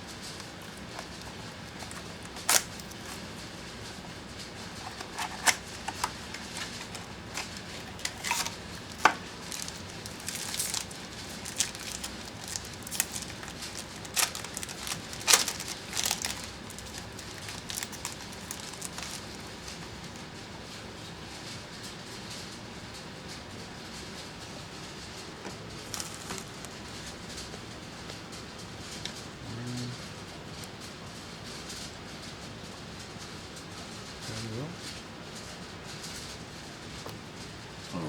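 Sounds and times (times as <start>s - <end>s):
card packaging rustling: 0.0s - 20.1s, 25.5s - 27.2s.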